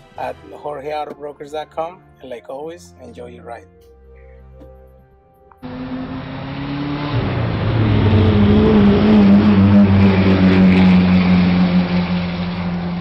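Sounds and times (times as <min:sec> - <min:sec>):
car engine running: 0:05.6 - 0:13.0
road and wind noise: 0:05.6 - 0:13.0.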